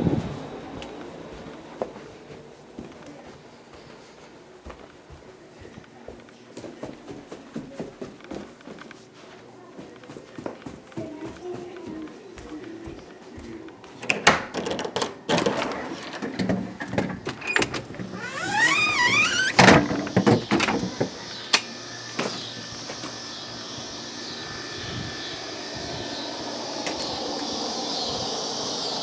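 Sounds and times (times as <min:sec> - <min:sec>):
knocks and footsteps: 0:00.8 - 0:14.0, 0:16.1 - 0:21.2
door hinges squeaking: 0:17.3 - 0:20.8
door banging shut: 0:17.3 - 0:20.9.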